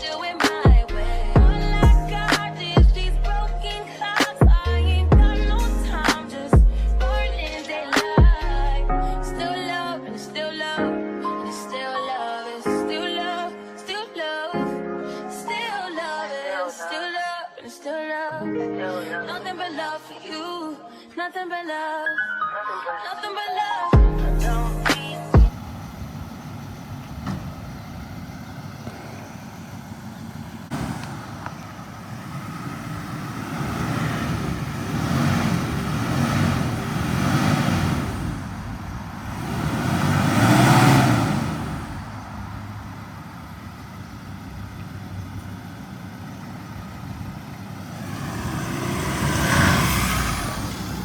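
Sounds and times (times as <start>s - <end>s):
road vehicles passing: 0.0s - 9.5s, 24.2s - 51.0s.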